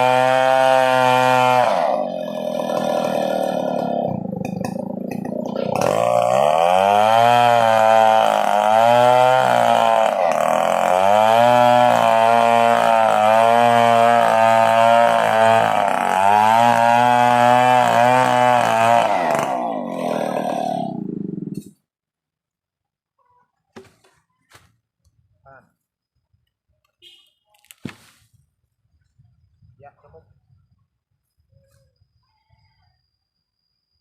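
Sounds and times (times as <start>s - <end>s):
chainsaw running hard: 0.0s - 21.6s.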